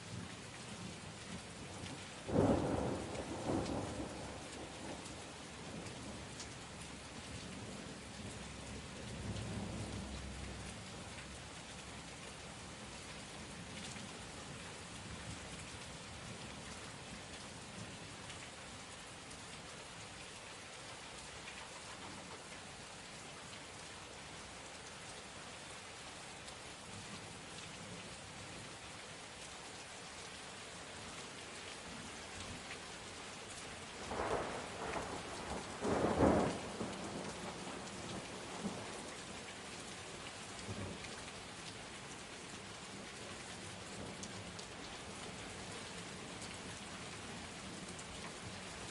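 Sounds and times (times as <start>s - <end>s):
heavy rain pattering: 0.0s - 48.9s.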